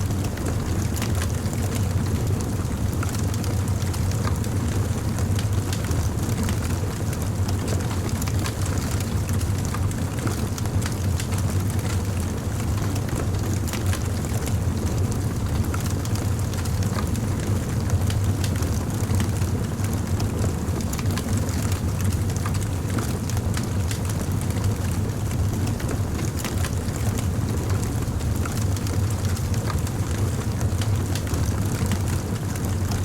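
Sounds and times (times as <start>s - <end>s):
wood fire crackling: 0.1s - 33.0s.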